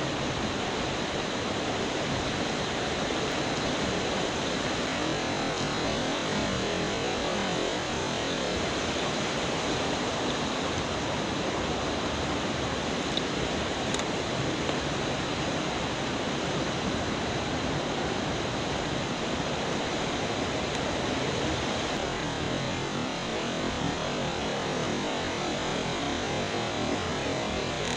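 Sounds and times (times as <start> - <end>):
stream rushing over rocks: 0.0 - 27.9.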